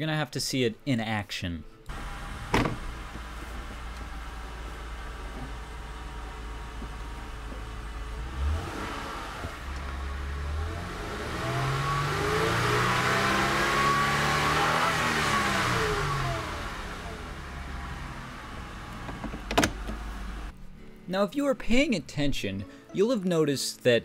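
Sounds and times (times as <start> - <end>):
car engine revving: 1.9 - 20.5.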